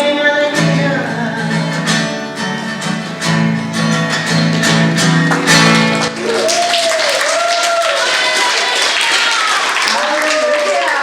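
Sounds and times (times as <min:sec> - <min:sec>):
person singing: 0:00.0 - 0:02.0
acoustic guitar strumming chords: 0:00.0 - 0:06.2.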